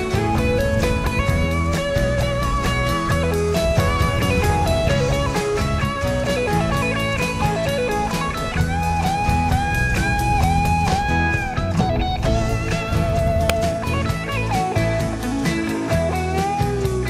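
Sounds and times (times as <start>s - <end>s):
blues-rock guitar music: 0.0s - 17.0s.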